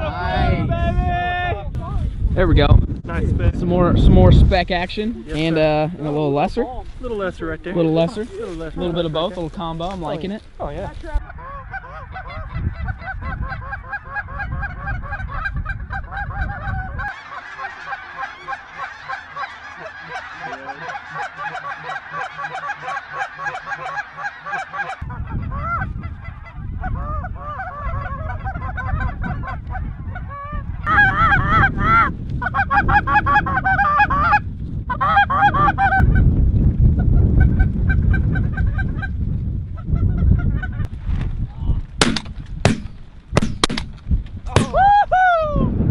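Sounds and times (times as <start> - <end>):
wind on microphone: 0.0 - 17.2, 23.1 - 45.9
geese honking: 7.7 - 36.2.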